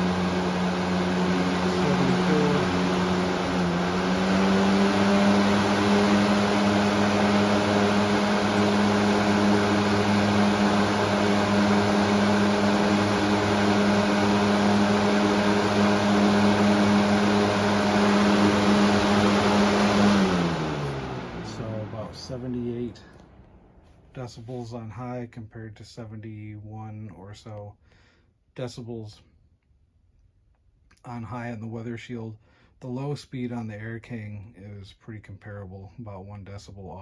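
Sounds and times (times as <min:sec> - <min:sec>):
box fan running: 0:00.0 - 0:24.6.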